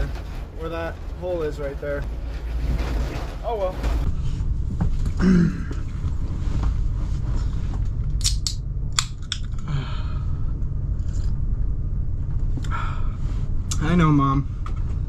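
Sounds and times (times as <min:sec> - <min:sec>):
bus rumbling on rough road: 0:00.0 - 0:15.0.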